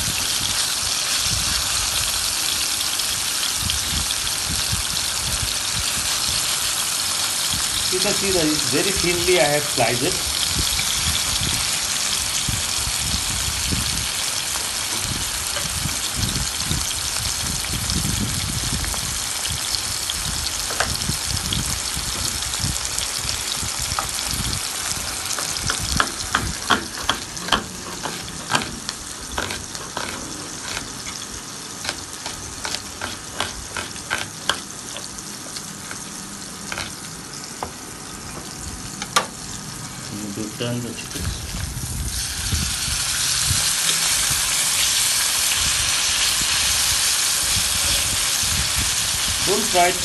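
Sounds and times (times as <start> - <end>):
chicken sizzling in hot oil: 0.0 - 50.0
utensil tapping a pan: 25.4 - 28.8.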